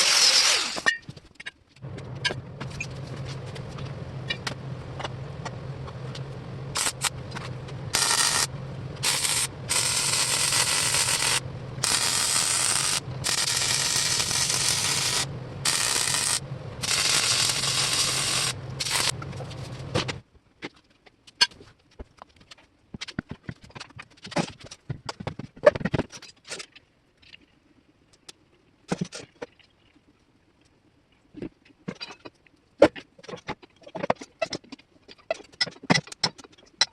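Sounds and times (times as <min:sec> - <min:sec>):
welder arc crackling: 0:00.0 - 0:00.8, 0:01.8 - 0:20.2
low welder hum: 0:00.0 - 0:00.9, 0:01.8 - 0:20.2.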